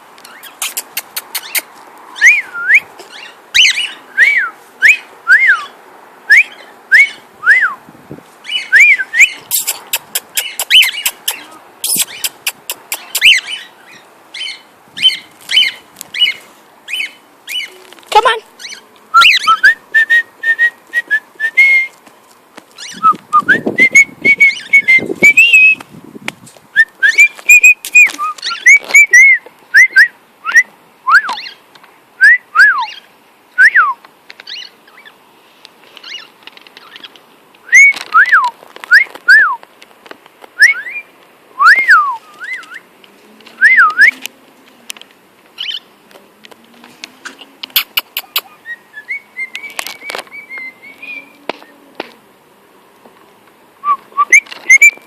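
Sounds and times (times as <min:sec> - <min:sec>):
cockatiel whistling: 0:48.2 - 0:51.4, 0:53.8 - 0:55.0.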